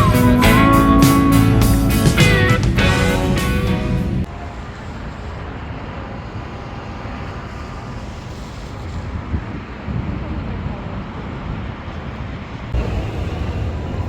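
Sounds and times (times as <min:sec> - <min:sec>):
guitar music: 0:00.0 - 0:04.3
outdoor background rumble: 0:00.0 - 0:14.0.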